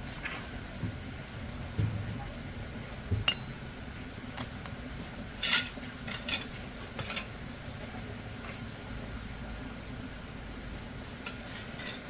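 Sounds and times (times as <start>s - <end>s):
insects chirring: 0.0s - 8.4s.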